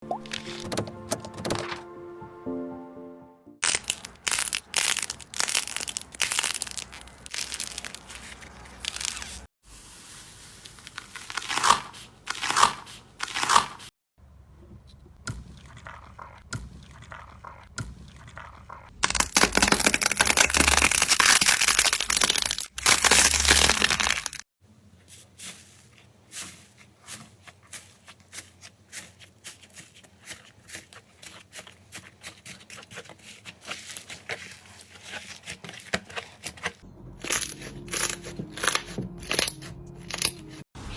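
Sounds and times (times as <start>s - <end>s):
slime crackling and popping: 3.6s - 9.5s, 19.0s - 24.4s.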